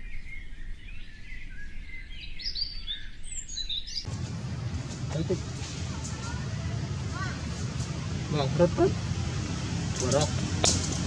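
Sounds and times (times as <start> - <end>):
birds chirping and twittering: 0.0 - 11.0
low rumbling background noise: 4.1 - 11.0.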